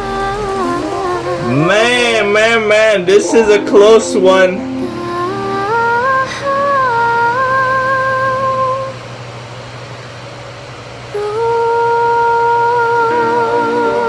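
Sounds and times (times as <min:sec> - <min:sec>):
person singing long notes: 0:00.0 - 0:09.0, 0:11.2 - 0:14.0
steady low hum: 0:00.0 - 0:14.0.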